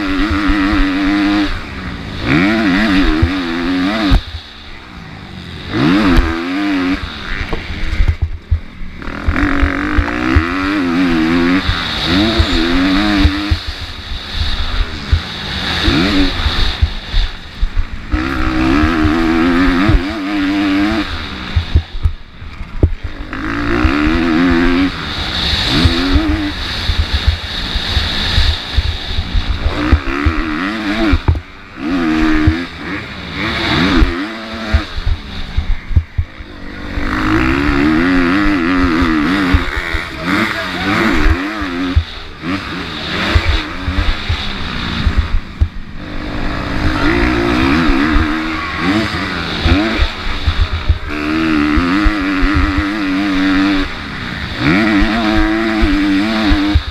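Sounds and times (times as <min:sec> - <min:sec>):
motocross bike engine racing: 0:00.0 - 0:56.9
low buffeting thumps: 0:07.8 - 0:10.6, 0:21.5 - 0:23.1, 0:28.3 - 0:31.6, 0:34.7 - 0:40.0, 0:43.4 - 0:48.4.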